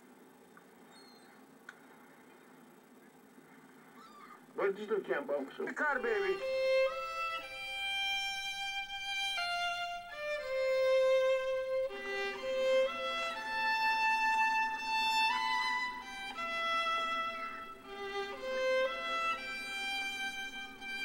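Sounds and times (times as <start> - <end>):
slow violin melody: 5.9 - 21.0.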